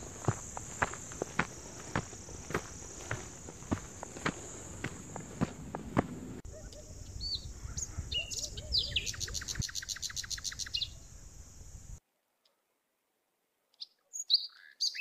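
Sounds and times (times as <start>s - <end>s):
footsteps on dirt trail: 0.0s - 6.4s
high insect drone: 0.0s - 12.0s
bird chirping and trilling: 7.2s - 11.0s, 13.8s - 15.0s.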